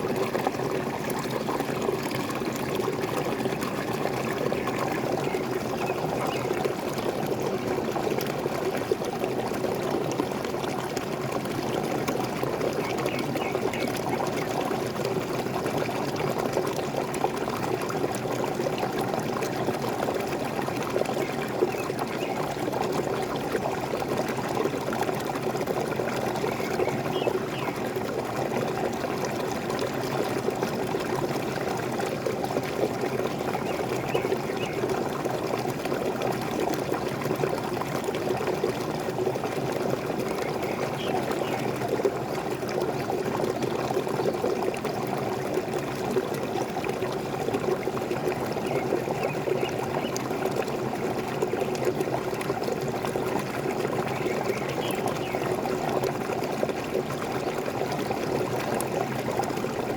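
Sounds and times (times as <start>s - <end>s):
small waterfall splashing: 0.0s - 59.9s.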